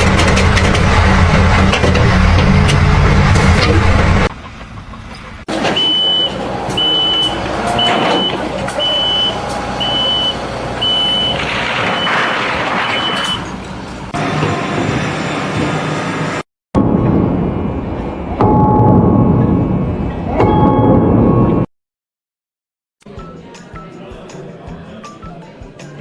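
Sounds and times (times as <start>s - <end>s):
loud low engine rumble: 0.0s - 18.4s
construction site noise: 0.0s - 20.7s
reversing alarm beeping: 5.6s - 12.2s.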